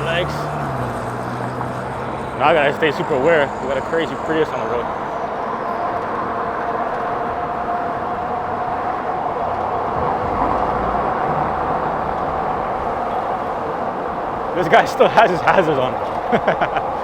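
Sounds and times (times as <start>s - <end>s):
e-bike road noise: 0.0s - 17.0s
steady whine: 2.0s - 7.4s, 9.5s - 16.3s
wind rush: 6.4s - 16.2s.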